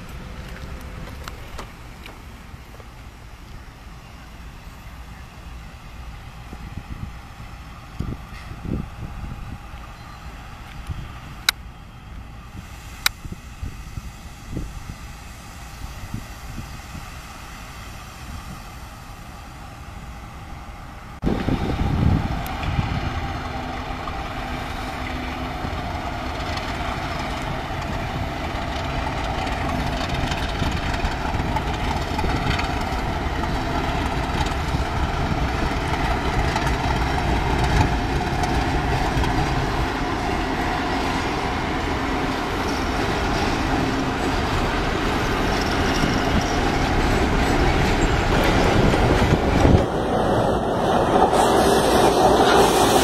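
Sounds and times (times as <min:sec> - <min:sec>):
freight train rumble: 0:00.0 - 0:53.0
wheel clatter on rails: 0:21.2 - 0:53.0.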